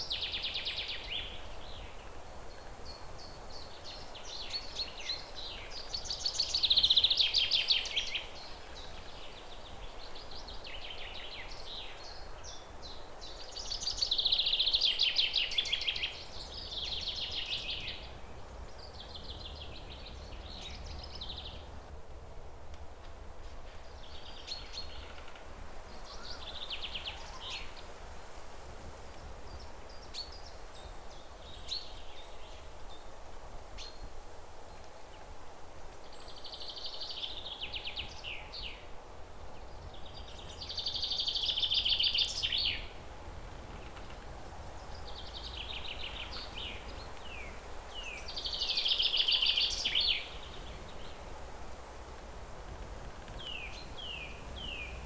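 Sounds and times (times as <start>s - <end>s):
songbirds singing trills: 0.0s - 21.9s, 23.7s - 27.9s, 29.2s - 33.2s, 36.1s - 55.0s
low outdoor rumble: 16.2s - 26.5s, 39.1s - 48.6s, 49.9s - 55.0s.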